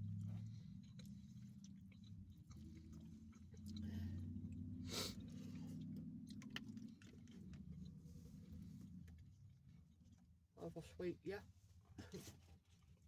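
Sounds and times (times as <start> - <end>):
chewing food close to mouth: 0.0 - 8.0.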